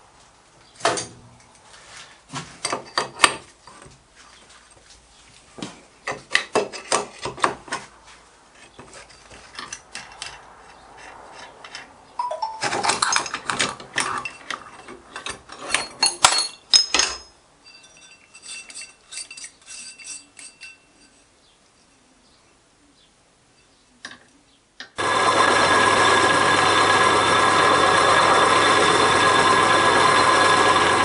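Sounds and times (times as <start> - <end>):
metal clinking and knocking: 8.8 - 21.3.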